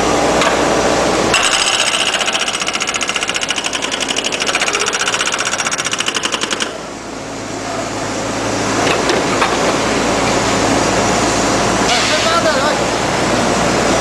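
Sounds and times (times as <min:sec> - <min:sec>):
factory din: 0:00.0 - 0:14.0
machine mechanical rattle: 0:01.3 - 0:06.8.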